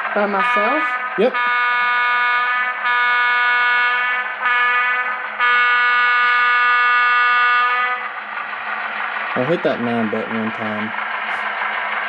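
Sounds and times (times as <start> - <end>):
model locomotive horn blasts: 0.3 - 8.1.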